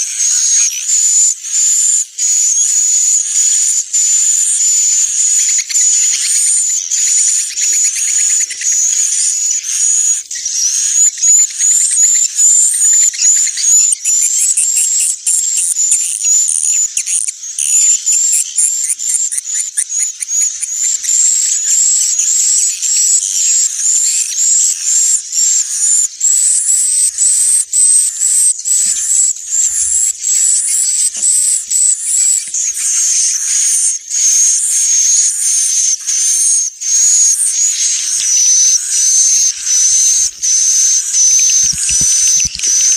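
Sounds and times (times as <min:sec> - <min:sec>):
high-pitched bird chirps and twitters: 0:00.0 - 0:42.9.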